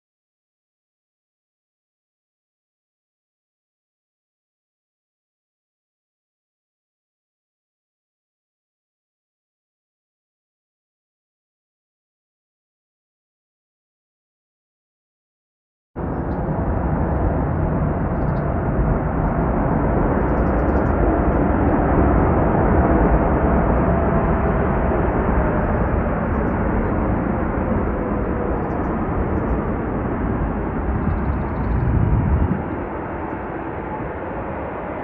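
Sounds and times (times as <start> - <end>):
jet airliner taking off: 16.0 - 35.0.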